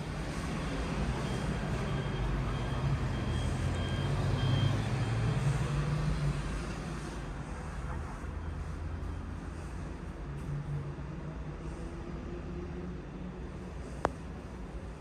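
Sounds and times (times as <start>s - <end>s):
large vehicle engine rumble: 0.0s - 10.7s
city road traffic: 0.0s - 15.0s
faint high beeps: 1.0s - 5.6s.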